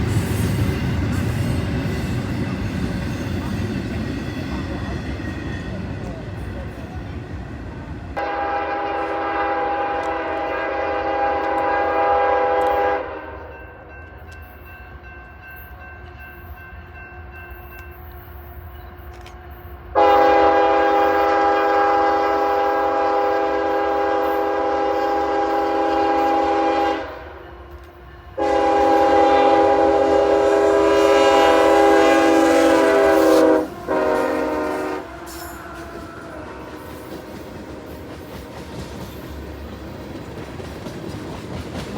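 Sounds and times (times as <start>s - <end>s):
train rumble: 0.0s - 41.9s
locomotive air horn: 8.2s - 13.5s, 19.9s - 27.4s, 28.4s - 37.3s.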